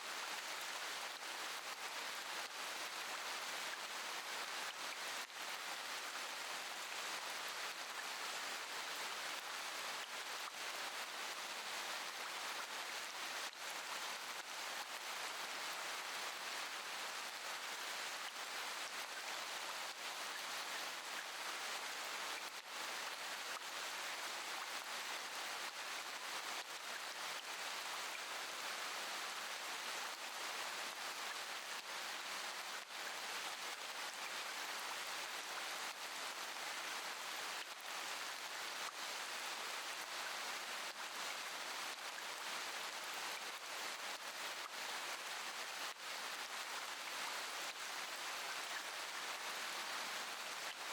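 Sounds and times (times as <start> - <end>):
steady rain: 0.0 - 50.9.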